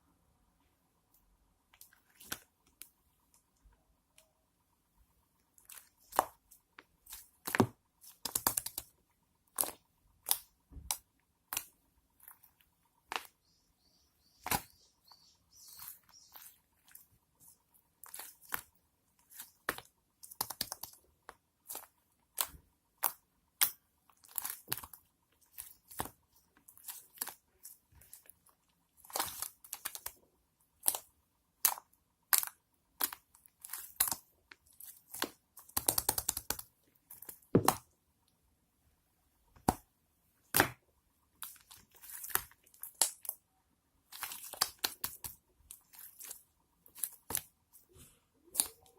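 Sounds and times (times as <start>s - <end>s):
slime clicking and popping: 7.1s - 8.9s, 30.8s - 34.3s, 35.0s - 37.8s, 44.1s - 45.4s.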